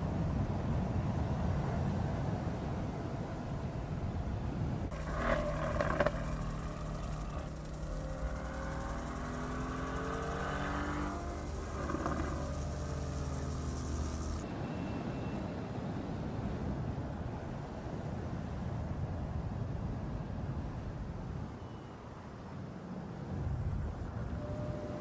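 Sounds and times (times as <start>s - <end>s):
car engine driving: 4.9s - 14.4s
high rushing hiss: 4.9s - 14.4s.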